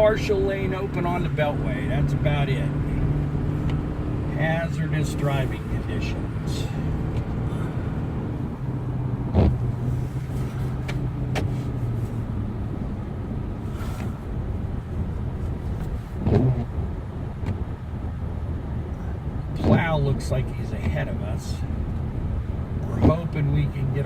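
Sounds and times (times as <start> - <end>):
car engine and road hum: 0.0 - 24.0
sharp thumps: 2.0 - 12.0.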